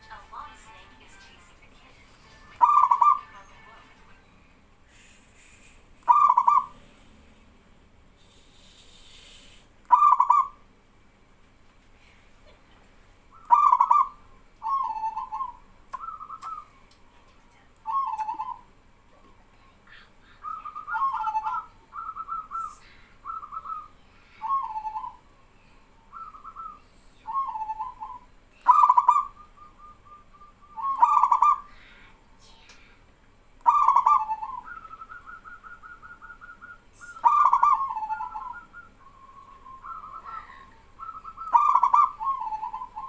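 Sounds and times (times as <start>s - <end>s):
doves cooing: 2.6s - 3.3s, 6.1s - 6.9s, 9.9s - 10.6s, 13.3s - 16.8s, 17.9s - 18.7s, 20.4s - 25.4s, 26.0s - 31.8s, 33.6s - 43.0s.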